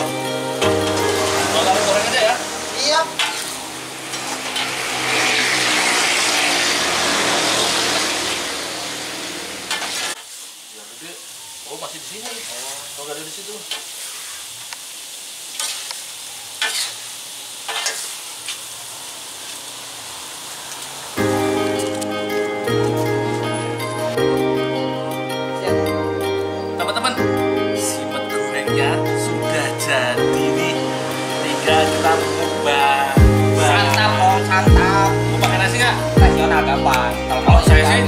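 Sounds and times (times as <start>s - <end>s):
food sizzling in hot oil: 0.0s - 38.0s
metal utensils clinking: 3.1s - 6.6s, 17.7s - 18.1s
metal spatula stirring in wok: 3.1s - 8.4s, 15.5s - 18.6s.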